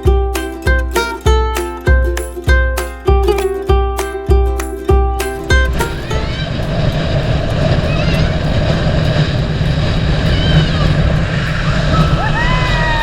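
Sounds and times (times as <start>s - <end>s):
rushing wind and water: 0.0s - 13.0s
motorboat engine drone: 5.4s - 12.8s.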